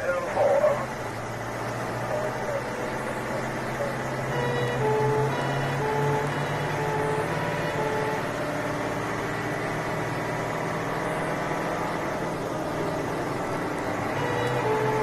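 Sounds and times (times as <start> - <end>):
vehicle engine running: 0.0 - 15.0
two-tone emergency horn: 4.3 - 8.6, 14.1 - 15.0.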